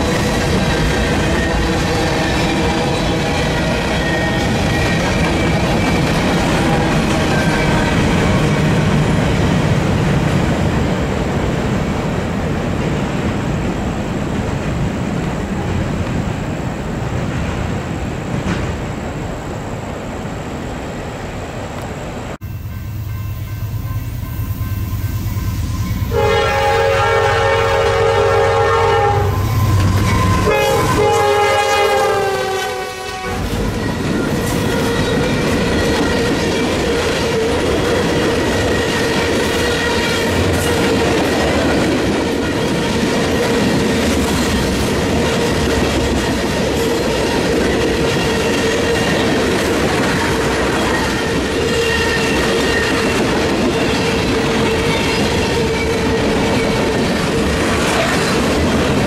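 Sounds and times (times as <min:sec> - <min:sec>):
wheels ringing on rails: 0:00.0 - 0:11.5, 0:22.4 - 0:59.0
locomotive horn blasts: 0:22.5 - 0:34.0.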